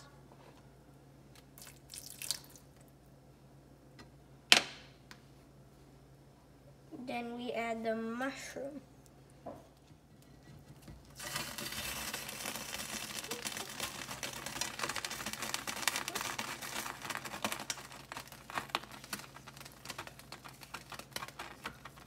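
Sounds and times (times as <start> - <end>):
mushrooms sizzling in hot oil: 11.2 - 19.7.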